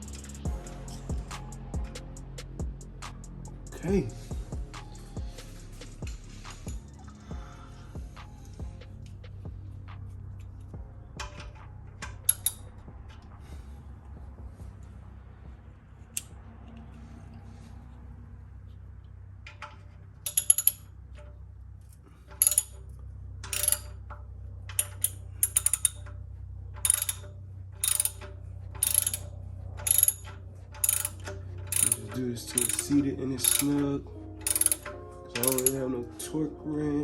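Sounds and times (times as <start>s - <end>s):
socket ratchet clicking: 11.2s - 12.8s, 19.5s - 20.9s, 22.3s - 22.8s, 23.4s - 24.1s, 24.7s - 26.2s, 26.8s - 35.9s.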